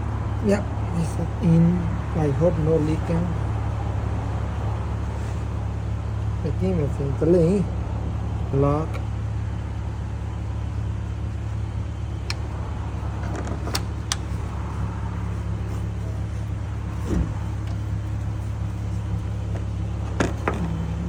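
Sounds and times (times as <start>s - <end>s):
car engine idling: 0.0s - 21.0s
light metallic clicks: 12.2s - 12.6s, 13.2s - 14.5s.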